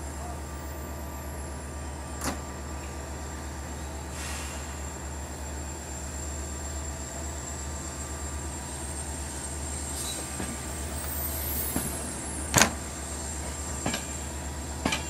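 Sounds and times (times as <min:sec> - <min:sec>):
train mechanical drone: 0:00.0 - 0:15.0
brief hiss: 0:04.1 - 0:04.8.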